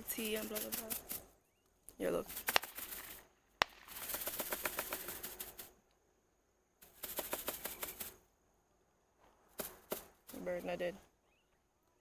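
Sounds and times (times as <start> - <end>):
bird wings flapping: 0.0 - 1.3, 2.0 - 5.8, 6.8 - 8.2, 9.5 - 10.7.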